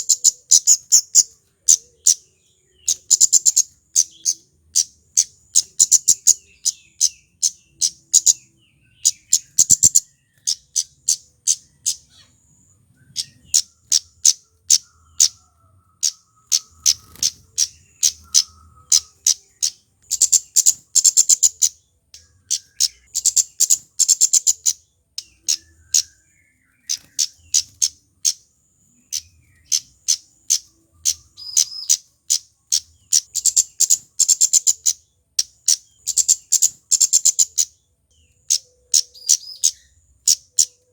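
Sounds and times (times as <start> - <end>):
bird calling high tsit notes: 13.0 - 37.7.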